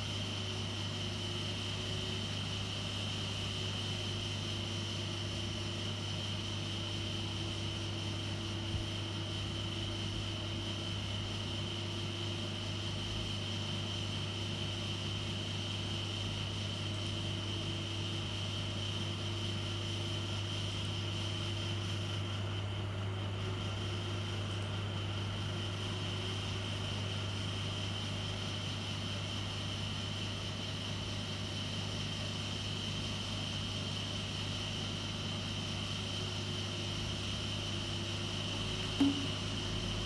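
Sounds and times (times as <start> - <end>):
steady hum: 36.8 - 40.0.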